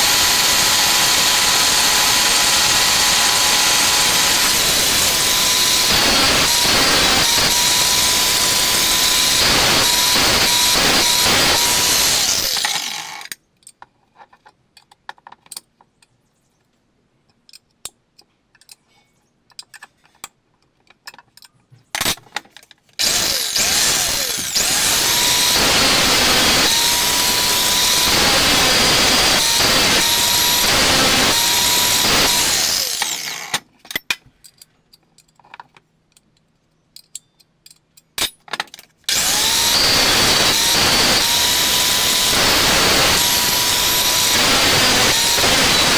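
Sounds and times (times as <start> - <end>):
power tool motor whining: 0.0 - 13.3, 23.0 - 33.6, 39.1 - 45.9.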